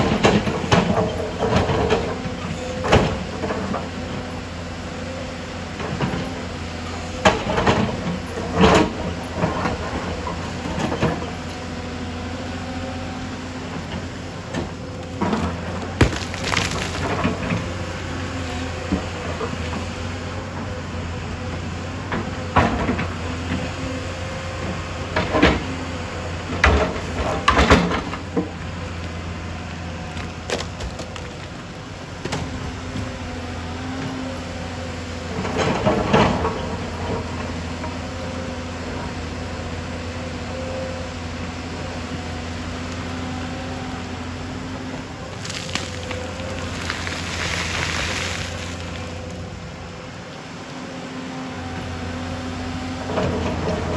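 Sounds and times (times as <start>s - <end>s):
excavator diesel engine running: 0.0s - 53.9s
metal clanking and scraping rock: 14.5s - 19.8s.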